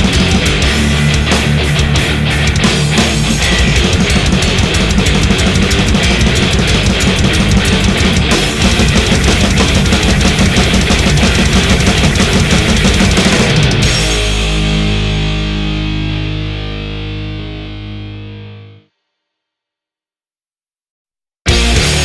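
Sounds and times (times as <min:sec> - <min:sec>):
fast dense drumming: 0:00.0 - 0:14.6
metal music distorted guitars: 0:00.0 - 0:18.8, 0:21.5 - 0:22.0.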